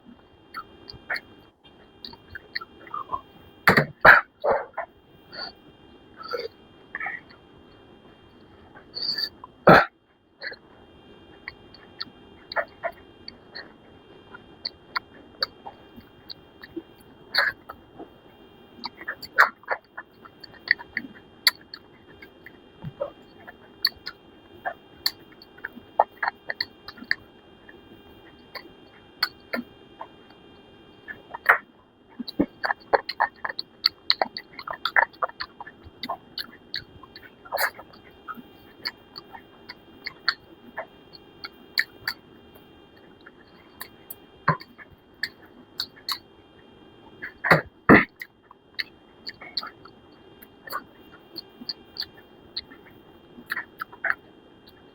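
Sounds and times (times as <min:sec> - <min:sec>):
person chewing with mouth smacks: 0:25.0 - 0:29.7, 0:32.2 - 0:42.2, 0:43.0 - 0:46.2, 0:47.2 - 0:54.8.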